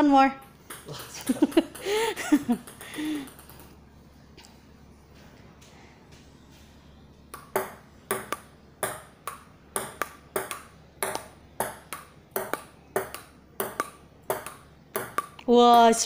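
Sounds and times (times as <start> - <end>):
table tennis ball clicking: 7.3 - 15.8.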